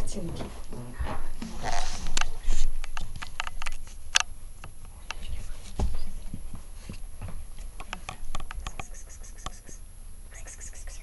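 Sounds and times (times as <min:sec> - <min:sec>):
light clicks and taps: 0:07.7 - 0:09.6.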